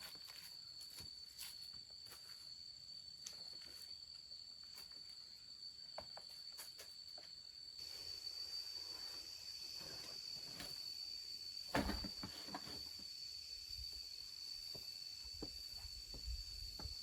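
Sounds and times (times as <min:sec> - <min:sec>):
insects trilling: 0:00.0 - 0:17.0
thump: 0:11.7 - 0:12.8.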